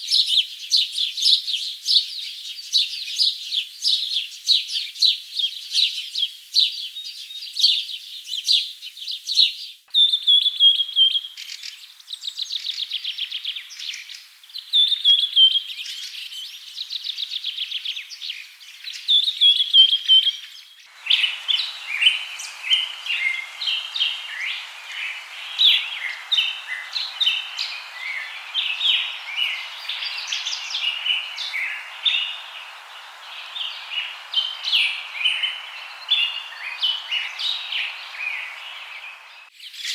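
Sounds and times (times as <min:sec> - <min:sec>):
chorus of many birds: 0:00.0 - 0:39.9
songbirds chirping and trilling: 0:00.0 - 0:39.9
steady hiss: 0:20.9 - 0:39.5.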